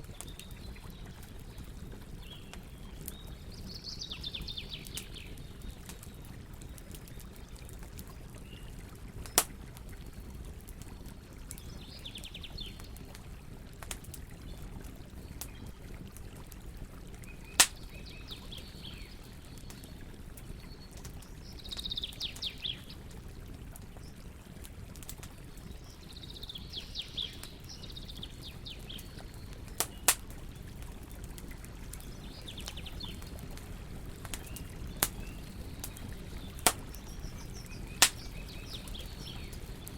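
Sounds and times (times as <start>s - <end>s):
campfire burning: 0.0s - 39.9s
fire popping: 0.0s - 39.9s
birds chirping: 31.9s - 39.9s.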